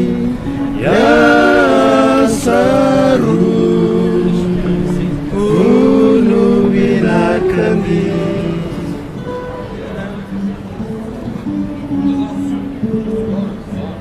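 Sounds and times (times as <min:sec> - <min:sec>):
voices singing held notes: 0:00.0 - 0:11.0.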